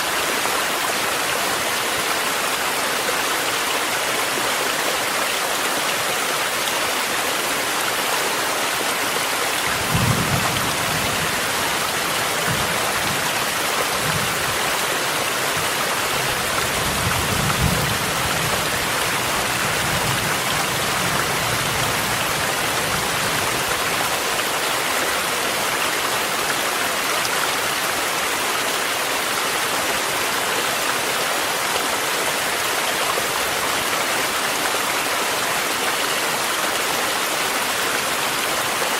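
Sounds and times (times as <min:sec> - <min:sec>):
mountain stream running: 0:00.0 - 0:38.9
steady rain falling: 0:00.0 - 0:38.9.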